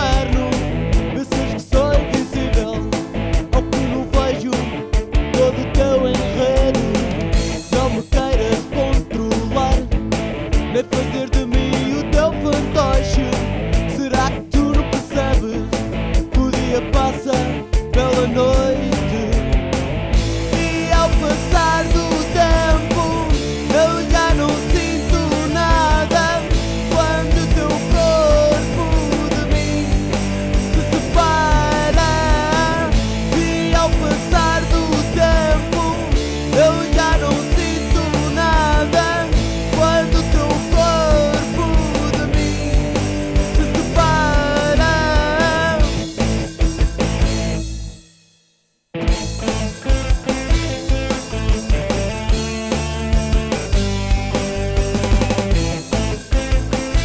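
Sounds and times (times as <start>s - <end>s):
person singing: 0.0s - 10.0s, 10.6s - 19.6s, 20.5s - 46.0s
electric guitars: 0.0s - 48.0s, 49.0s - 57.0s
bass guitar: 0.0s - 48.1s, 48.9s - 57.0s
rock band playing: 0.0s - 48.2s, 48.9s - 57.0s
drums: 0.0s - 57.0s
pitch-bending lead melody: 15.7s - 47.8s
band accented hits: 19.0s - 57.0s.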